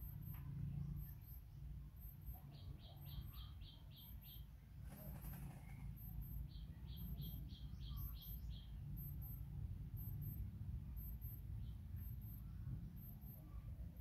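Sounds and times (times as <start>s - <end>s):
bird chirping: 0.7s - 9.4s.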